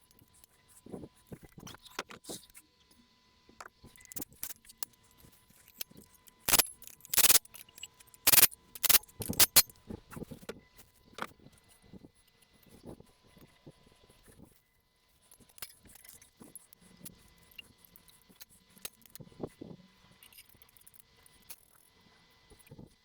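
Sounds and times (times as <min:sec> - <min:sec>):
metal tools clinking: 0:06.5 - 0:09.6.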